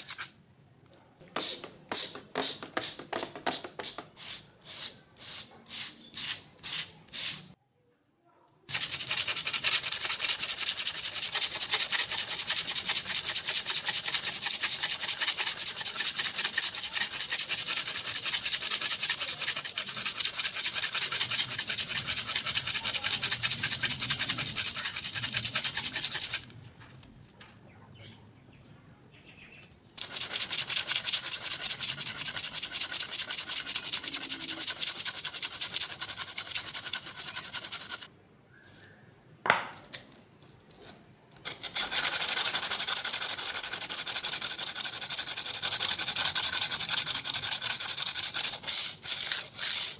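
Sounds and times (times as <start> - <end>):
knife scraping on sharpener: 0.0 - 0.4, 47.8 - 49.9.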